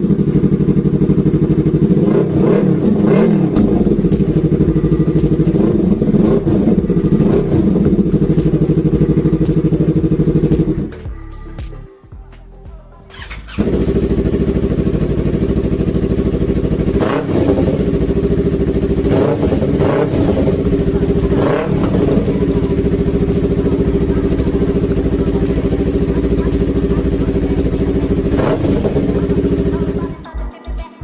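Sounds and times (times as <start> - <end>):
motorcycle engine idling and revving: 0.0 - 30.3.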